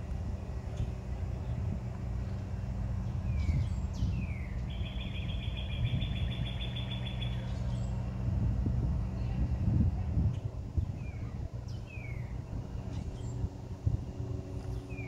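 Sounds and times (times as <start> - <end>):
steady low hum: 0.0 - 15.0
songbird whistles and trill: 3.2 - 7.9.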